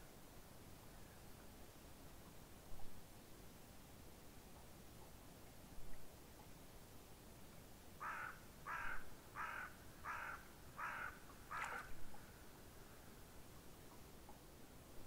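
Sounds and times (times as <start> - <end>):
bird giving rough calls: 8.0 - 11.9.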